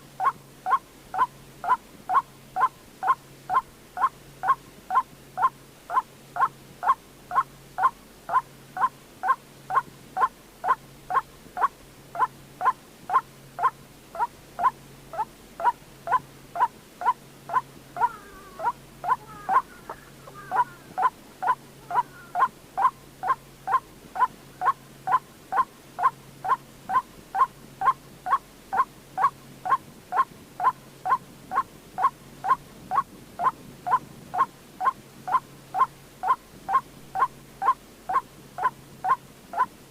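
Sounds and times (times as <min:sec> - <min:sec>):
bird calling repeated note: 0:12.2 - 0:25.2.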